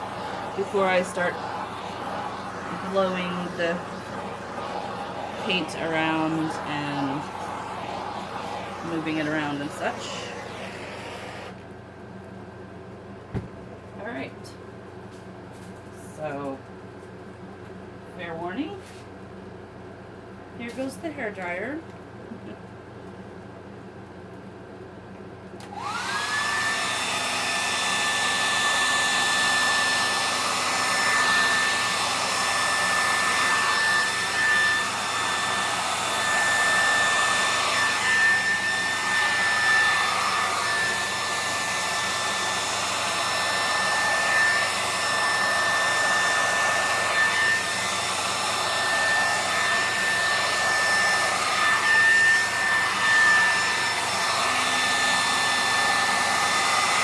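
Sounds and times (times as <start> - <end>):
hair dryer blowing: 0.0 - 11.7, 25.6 - 57.0.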